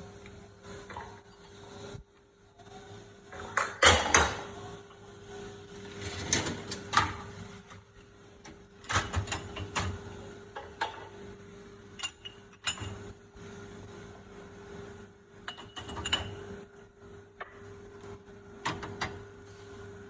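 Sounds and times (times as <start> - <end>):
dishwasher rack sliding: 5.9 - 7.2.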